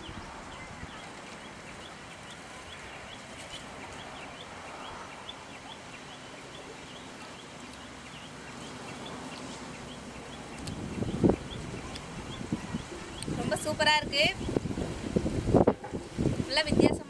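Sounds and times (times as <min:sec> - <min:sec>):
bird chirping: 0:00.0 - 0:13.6
outdoor background hiss: 0:00.0 - 0:17.0.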